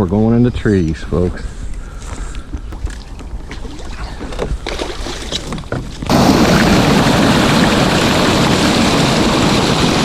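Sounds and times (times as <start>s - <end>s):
heavy rain hissing: 6.1s - 10.0s.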